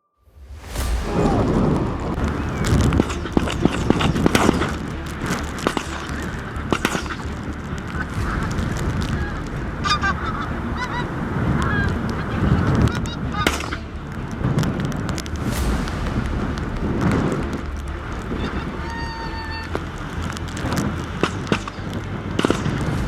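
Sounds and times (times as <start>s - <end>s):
wind rumbling on microphone: 0.3s - 23.0s
geese honking: 1.6s - 15.1s, 17.7s - 22.8s.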